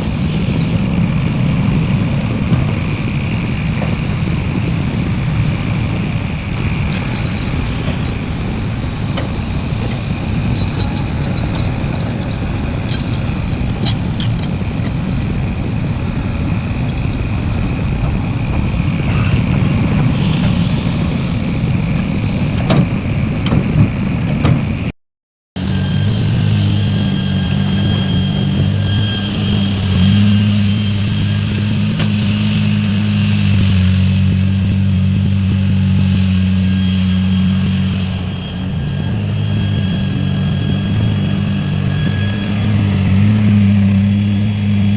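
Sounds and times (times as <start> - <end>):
heavy diesel machinery rumbling: 0.0 - 24.9, 25.6 - 44.9.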